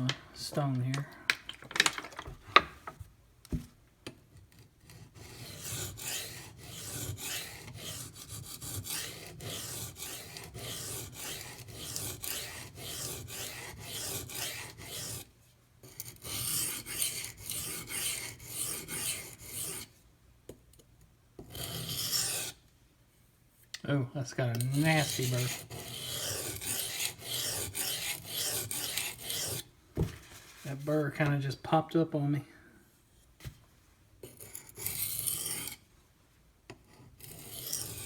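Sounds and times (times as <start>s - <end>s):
knife scraping on sharpening stone: 21.5s - 22.6s, 24.6s - 29.6s, 34.3s - 35.8s, 37.2s - 38.0s.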